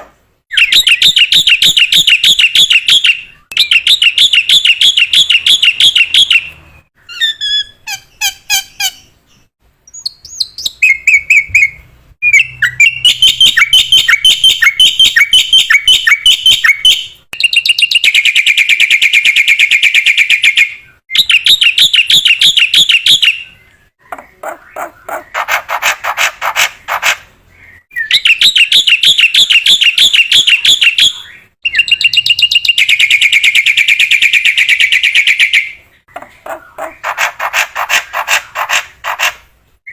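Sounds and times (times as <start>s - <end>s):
rasping bird chatter: 24.0s - 39.5s.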